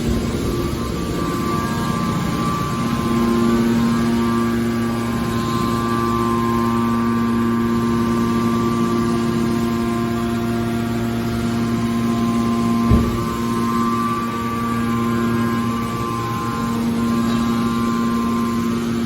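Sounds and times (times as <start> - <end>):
hydraulic pump motor humming: 0.0 - 19.0
short knock: 12.9 - 13.5.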